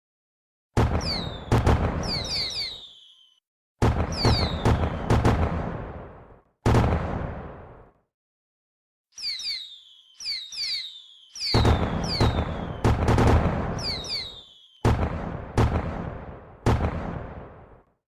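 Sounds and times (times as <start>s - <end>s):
fireworks bangs rumbling: 0.8s - 3.1s, 3.8s - 7.9s, 9.2s - 17.8s
fireworks whistling: 0.8s - 5.8s, 9.2s - 16.2s.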